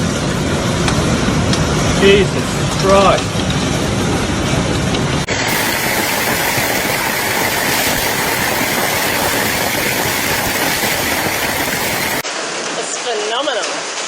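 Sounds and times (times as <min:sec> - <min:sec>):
hail and rain pelting down: 0:00.0 - 0:14.0.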